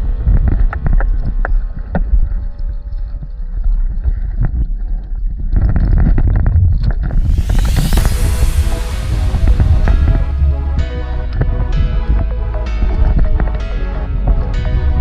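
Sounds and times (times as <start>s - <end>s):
wind buffeting microphone: 0.0s - 15.0s
loud hiss: 7.1s - 11.4s.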